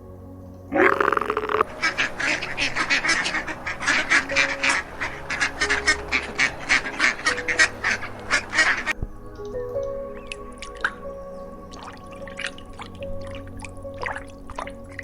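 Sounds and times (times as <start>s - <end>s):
faint background music: 0.0s - 15.0s
animal honking calls: 0.7s - 8.9s.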